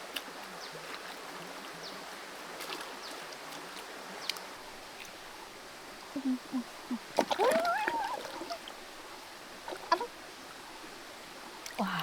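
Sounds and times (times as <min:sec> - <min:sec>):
creek flowing: 0:00.0 - 0:12.0.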